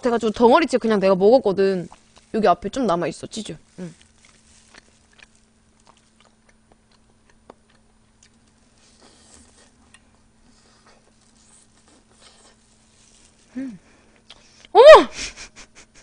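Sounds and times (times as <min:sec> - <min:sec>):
faint steady hum: 0:00.0 - 0:16.0
chewing and mouth clicks: 0:03.9 - 0:13.4.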